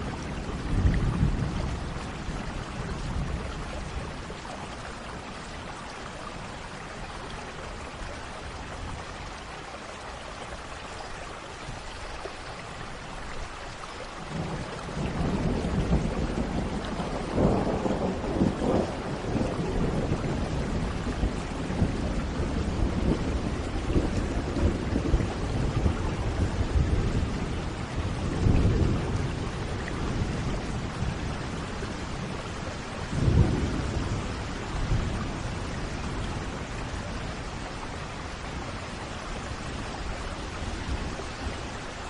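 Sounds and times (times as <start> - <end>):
thunder rumbling: 0.0 - 4.3, 14.3 - 41.8
steady rain falling: 0.0 - 42.0.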